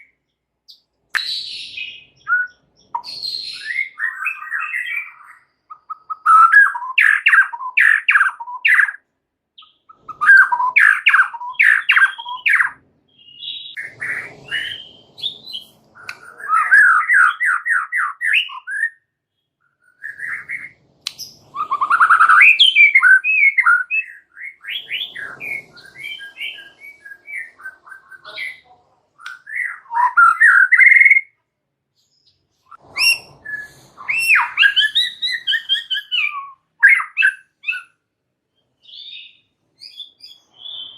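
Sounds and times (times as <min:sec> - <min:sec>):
songbird singing varied phrases: 0:00.0 - 0:09.0, 0:09.6 - 0:31.4, 0:32.0 - 0:40.9.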